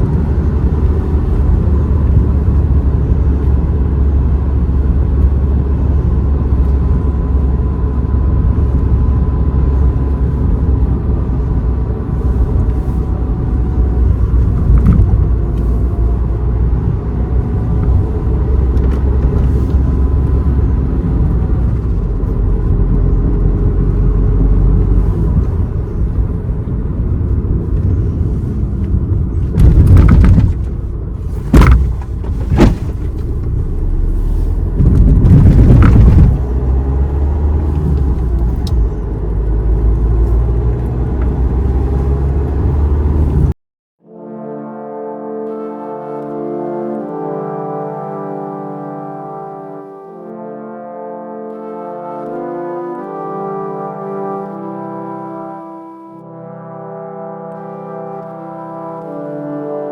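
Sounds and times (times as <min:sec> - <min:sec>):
car engine and road noise: 0:00.0 - 0:43.6
loud sudden thumps: 0:29.5 - 0:30.8, 0:31.4 - 0:33.4, 0:34.8 - 0:36.5.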